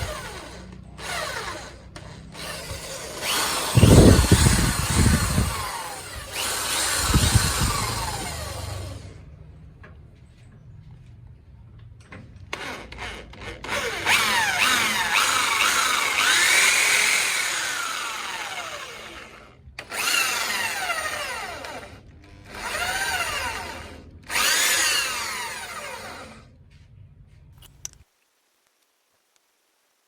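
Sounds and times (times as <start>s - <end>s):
power tool motor whine: 0.0s - 9.2s, 12.5s - 26.5s.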